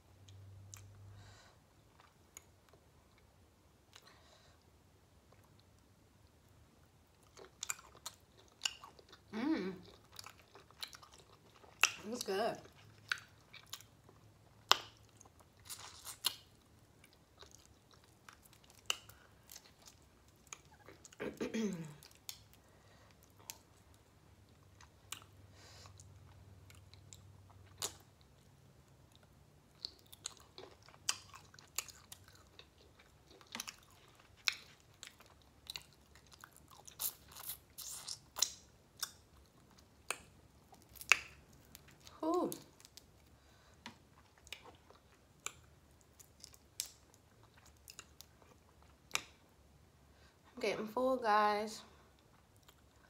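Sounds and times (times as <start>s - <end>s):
person chewing shrimp: 7.1s - 12.0s, 12.6s - 21.2s, 22.0s - 49.5s, 52.1s - 53.0s
wet mouth clicks and smacks: 40.0s - 41.4s, 49.1s - 49.4s.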